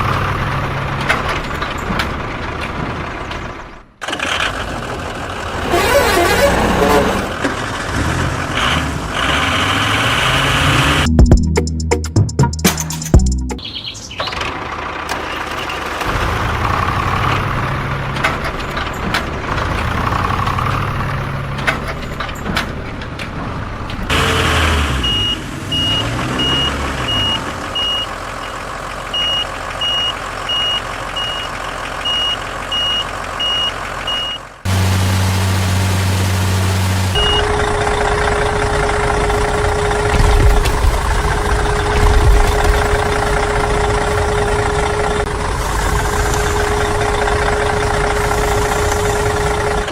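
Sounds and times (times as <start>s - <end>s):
construction machinery running: 0.0s - 11.2s, 13.7s - 49.9s
reversing alarm beeps: 25.0s - 28.1s, 29.2s - 34.4s, 37.2s - 40.9s.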